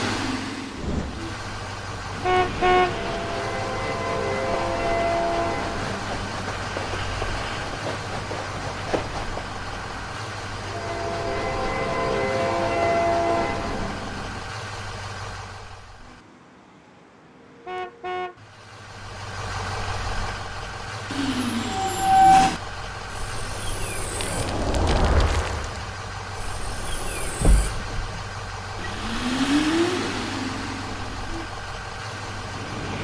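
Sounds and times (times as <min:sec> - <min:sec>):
cartoon truck engine rumble: 0:00.0 - 0:11.5, 0:17.9 - 0:33.0
truck horn beeps: 0:02.2 - 0:06.0, 0:10.6 - 0:13.9, 0:17.6 - 0:18.4.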